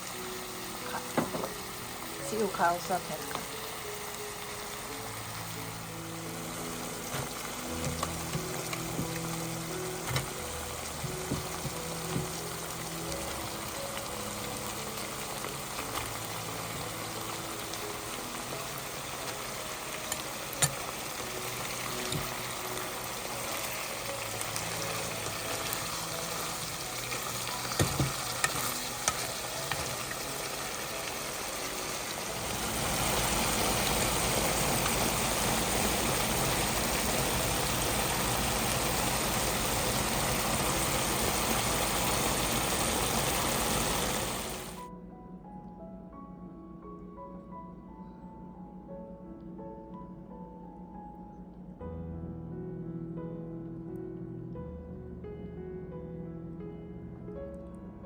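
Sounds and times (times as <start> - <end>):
food sizzling in a pan: 0.0 - 44.8.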